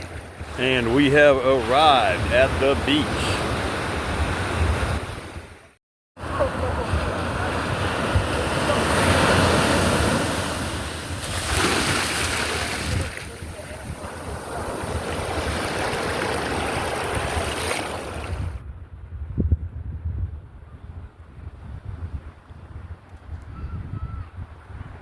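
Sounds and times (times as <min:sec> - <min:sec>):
waves washing in: 0:00.0 - 0:18.6
wind buffeting the microphone: 0:12.6 - 0:25.0.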